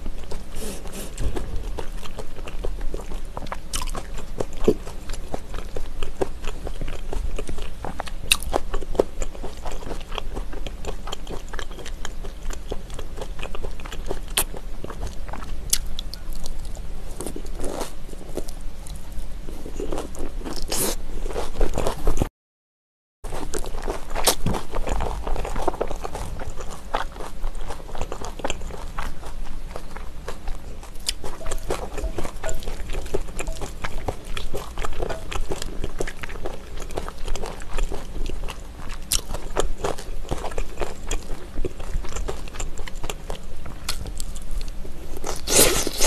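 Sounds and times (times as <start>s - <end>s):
chewing and crunching: 0.0s - 22.3s, 23.3s - 46.0s.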